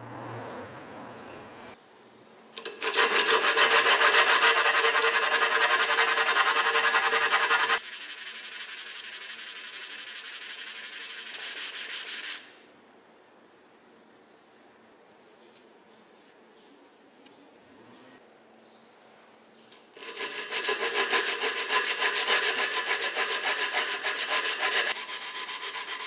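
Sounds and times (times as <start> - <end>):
sandpaper rubbing on wood: 3.0 - 12.5, 20.0 - 26.0.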